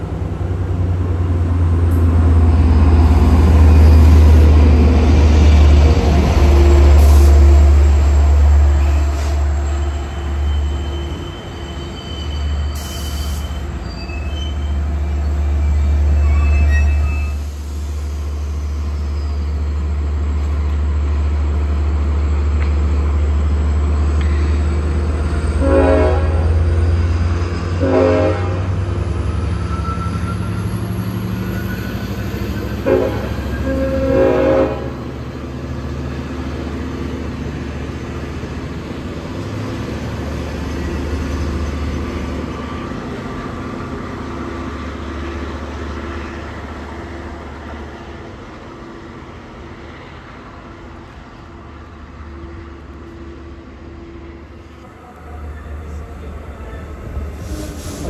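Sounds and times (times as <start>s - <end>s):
train horn blowing: 25.6s - 26.8s, 27.8s - 28.8s, 32.8s - 35.1s.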